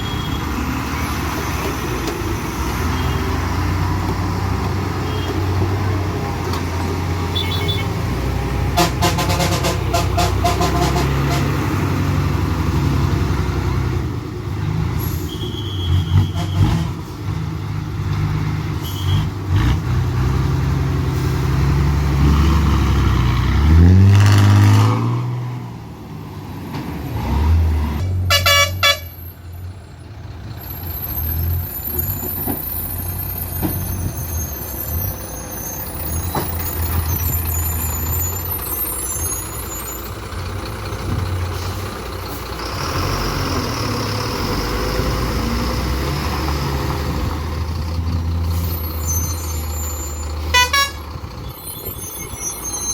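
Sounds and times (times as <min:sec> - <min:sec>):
heavy truck engines labouring: 0:00.0 - 0:52.9
pulsing horn blast: 0:08.8 - 0:11.5, 0:28.3 - 0:29.2, 0:50.5 - 0:51.0.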